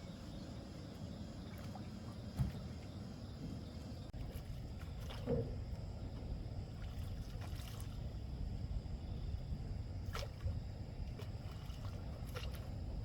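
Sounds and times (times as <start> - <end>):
water and wind rumble: 0.0 - 13.0
sharp knocks or splashes: 1.6 - 2.8.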